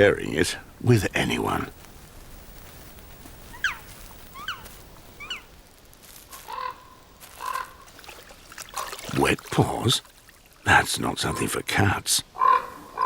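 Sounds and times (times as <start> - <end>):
bird honking calls: 6.4 - 7.8, 12.4 - 13.0.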